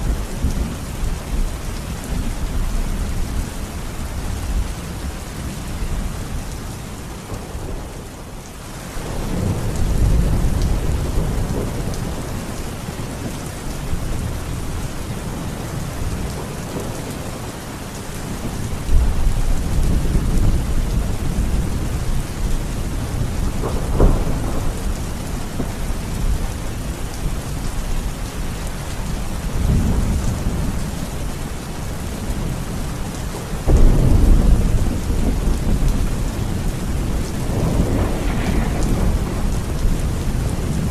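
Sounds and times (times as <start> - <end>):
heavy rain hissing: 0.0 - 40.9
rolling thunder: 9.0 - 17.5, 18.2 - 40.9
sharp thunderclap: 23.0 - 26.5, 33.6 - 40.9.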